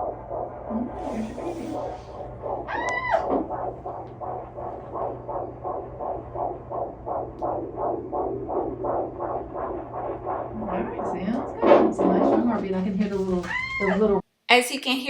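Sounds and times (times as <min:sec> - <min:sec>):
pulsing beat: 0:00.0 - 0:14.2
woman screaming excitedly: 0:02.7 - 0:03.3, 0:13.4 - 0:14.2.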